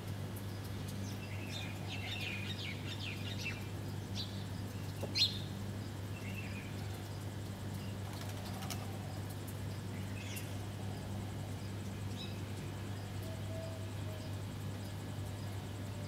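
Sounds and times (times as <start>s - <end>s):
steady low hum: 0.0s - 16.0s
small birds chirping: 0.4s - 15.9s.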